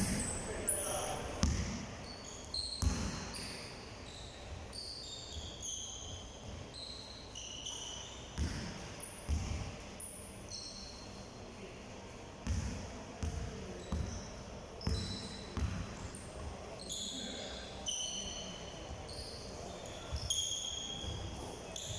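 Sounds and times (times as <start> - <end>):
shoes squeaking: 2.0 - 8.4.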